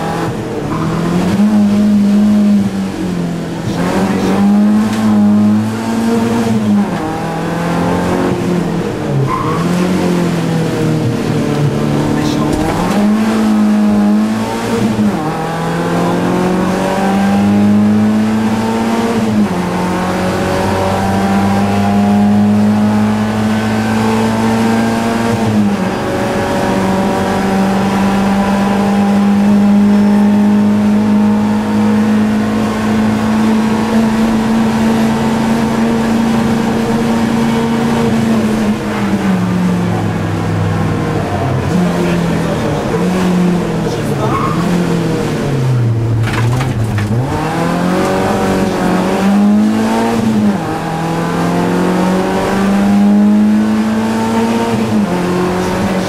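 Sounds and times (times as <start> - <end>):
car engine accelerating: 0.0 - 56.0
gear upshifts: 32.1 - 56.0.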